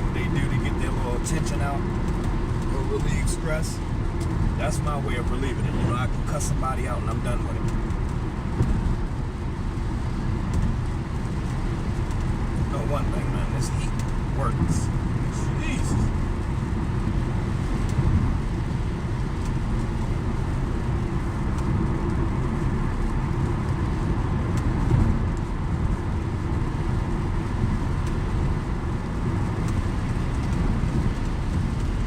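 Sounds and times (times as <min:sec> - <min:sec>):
car road and engine noise: 0:00.0 - 0:32.0.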